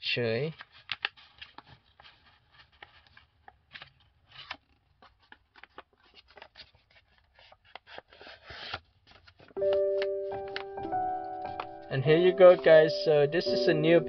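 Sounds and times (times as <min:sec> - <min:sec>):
paper crinkling and rustling: 0:00.4 - 0:13.1
music: 0:09.6 - 0:14.0.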